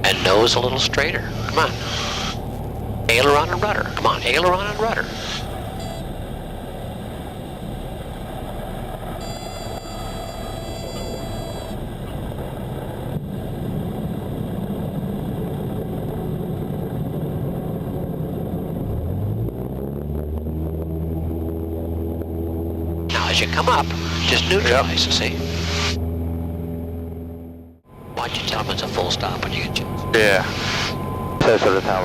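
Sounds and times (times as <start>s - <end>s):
airflow and rolling noise: 0.0s - 32.0s
propeller plane engine: 0.0s - 32.0s
brief high tone: 5.7s - 6.1s, 9.2s - 11.8s, 27.9s - 32.0s.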